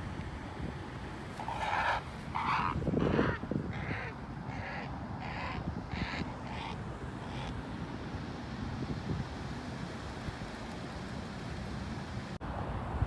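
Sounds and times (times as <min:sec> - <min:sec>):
low wind rumble: 0:00.0 - 0:13.0
bird harsh calls: 0:01.4 - 0:07.5.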